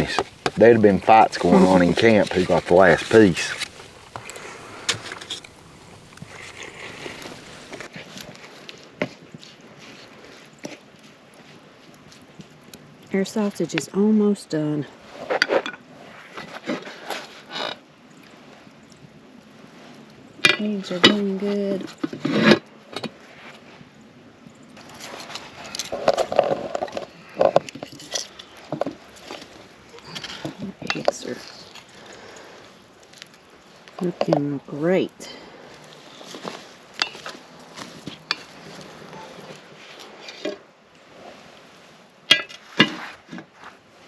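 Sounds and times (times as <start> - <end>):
faint steady hiss: 0.0 - 7.9
metal utensil scraping skillet: 0.0 - 7.9.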